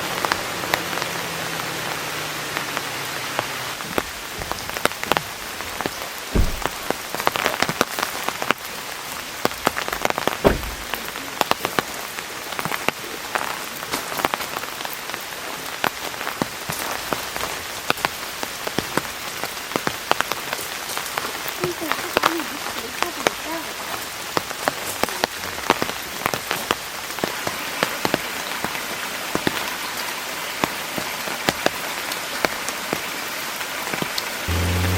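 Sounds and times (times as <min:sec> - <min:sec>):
heavy rain pouring: 0:00.0 - 0:34.9
heavy low thuds: 0:06.3 - 0:07.0, 0:10.4 - 0:11.1.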